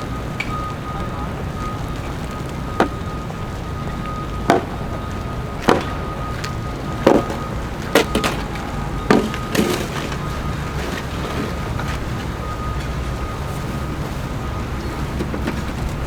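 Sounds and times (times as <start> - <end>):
sharp knocks: 4.5 - 4.8, 5.6 - 6.0, 7.0 - 10.0.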